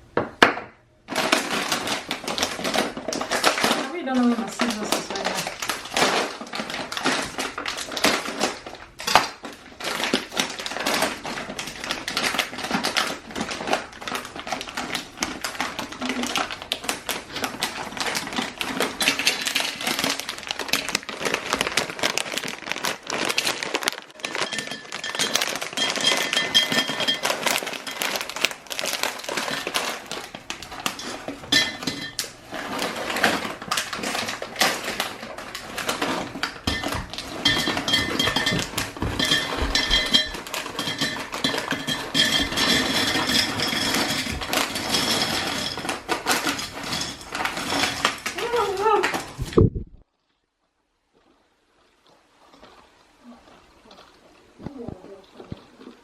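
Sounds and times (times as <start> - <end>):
packages tapping crinkling and clattering: 1.0 - 49.7.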